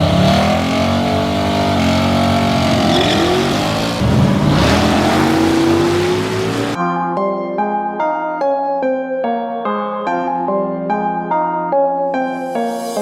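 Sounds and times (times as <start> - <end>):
vehicle engine accelerating: 0.0 - 6.8.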